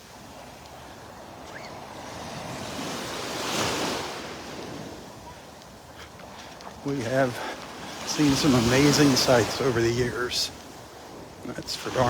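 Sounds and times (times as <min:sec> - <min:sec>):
wave breaking on beach: 0:01.4 - 0:05.5, 0:06.7 - 0:12.0.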